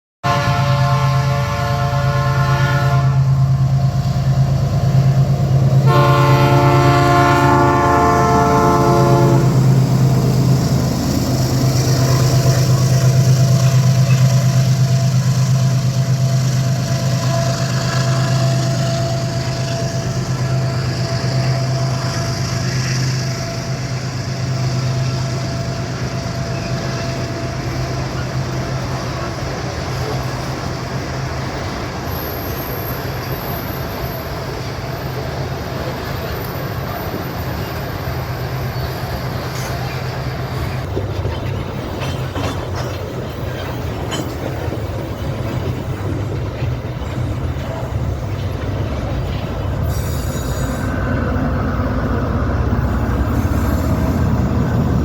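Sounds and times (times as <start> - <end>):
train horn blasts: 0.2 - 3.7, 5.7 - 10.5, 11.6 - 27.9
diesel engines droning: 1.6 - 55.0
wagons rolling on rails: 23.3 - 50.9.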